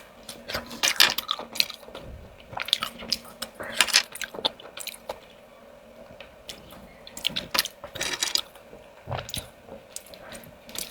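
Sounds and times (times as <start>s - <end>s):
chewing: 6.5s - 10.9s
slurping snails from shells: 6.5s - 10.9s.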